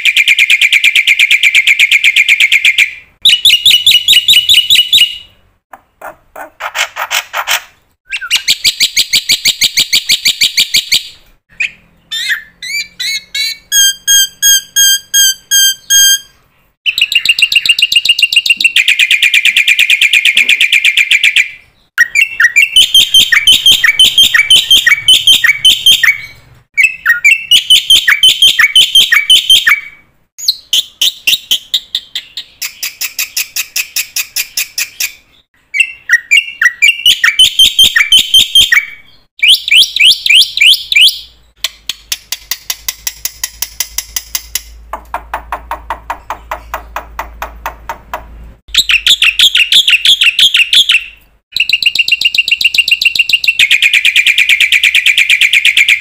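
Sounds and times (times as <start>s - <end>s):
songbird singing trills: 8.0s - 41.4s, 48.7s - 56.0s.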